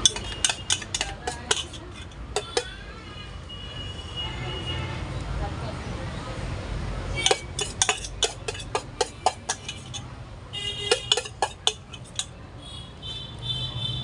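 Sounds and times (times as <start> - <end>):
metal utensils clinking on pan: 0.0 - 2.8, 7.2 - 10.1, 10.9 - 12.4.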